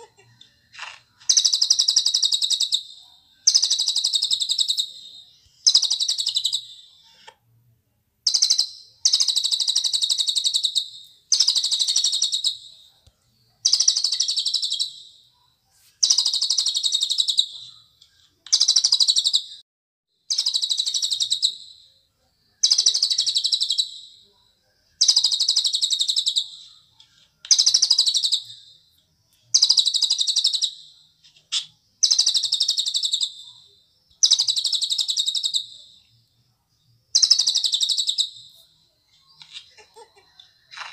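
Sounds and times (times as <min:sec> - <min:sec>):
songbird trilling: 0:37.2 - 0:38.4.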